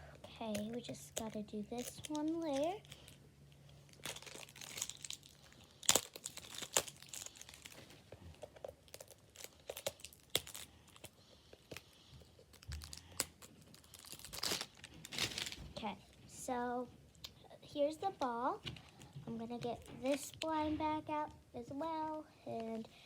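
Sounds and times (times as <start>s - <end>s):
wrapping crinkling and tearing: 0.4s - 15.9s.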